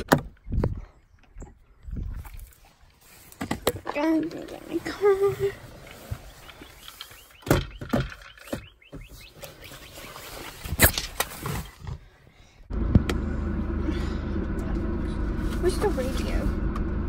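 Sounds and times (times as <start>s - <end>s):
car engine hum: 12.7s - 17.0s.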